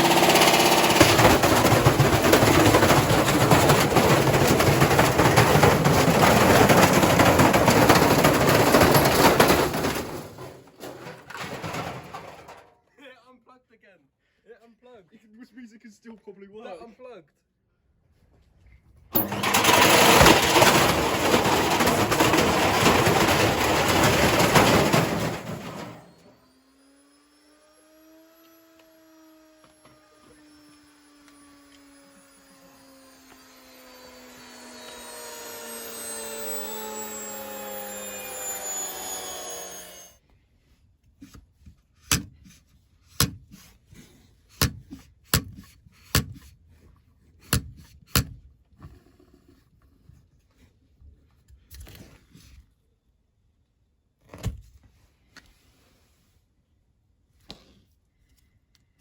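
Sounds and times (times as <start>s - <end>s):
washing machine rushing noise: 0.0s - 11.4s, 19.1s - 26.2s
motor whine falling in pitch: 26.0s - 40.1s.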